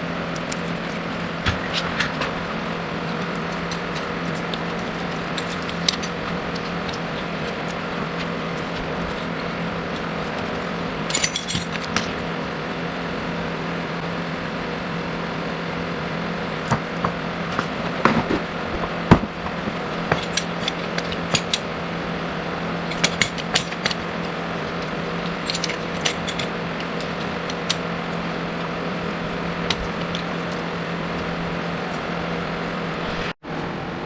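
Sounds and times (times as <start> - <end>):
steady hum: 0.0 - 34.0
hand tools clinking: 0.3 - 13.1, 19.0 - 21.7, 22.8 - 32.2.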